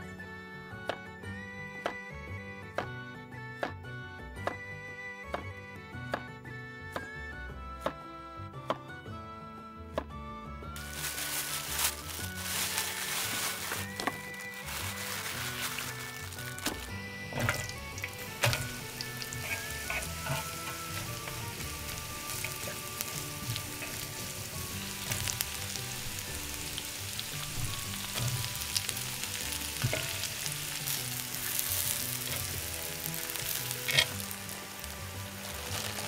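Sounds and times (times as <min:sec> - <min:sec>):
food sizzling in a pan: 0:10.8 - 0:36.0.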